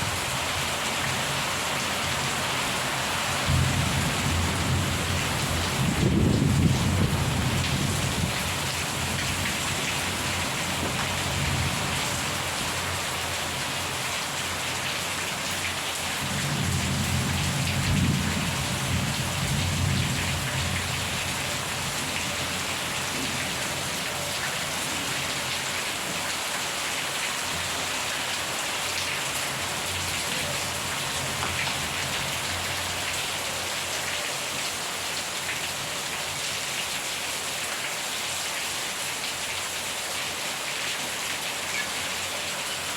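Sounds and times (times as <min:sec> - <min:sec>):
heavy rain pattering: 0:00.0 - 0:42.9
thunder rumbling: 0:03.5 - 0:08.4.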